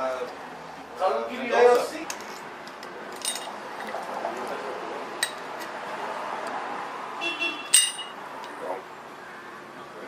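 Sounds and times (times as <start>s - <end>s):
workshop background noise: 0.0s - 10.0s
metallic clinks of tools: 7.7s - 8.2s.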